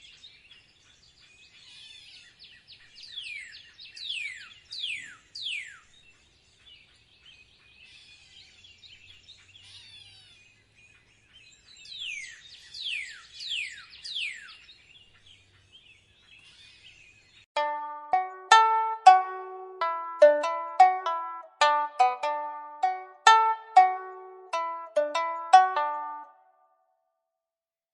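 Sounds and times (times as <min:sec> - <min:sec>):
soft bird chirping: 0:00.0 - 0:17.4.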